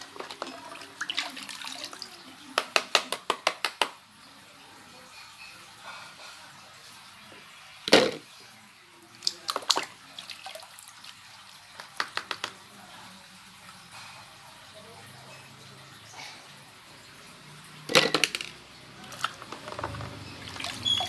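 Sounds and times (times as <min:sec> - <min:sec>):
water dripping: 0:09.1 - 0:12.7, 0:17.0 - 0:21.0
water splashing: 0:17.4 - 0:21.0.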